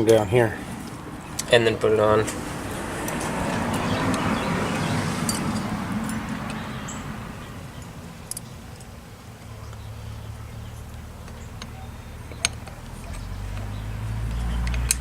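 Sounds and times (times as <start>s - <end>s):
small metal parts clicking: 14.3s - 15.0s.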